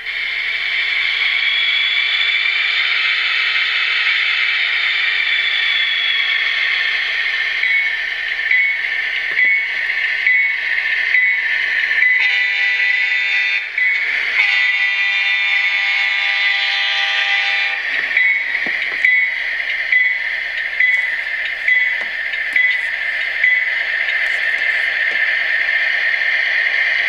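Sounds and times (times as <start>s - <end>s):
locomotive engine sound: 0.0s - 27.0s
diesel locomotive horn blasts: 12.0s - 25.6s
bell dinging: 18.1s - 25.2s.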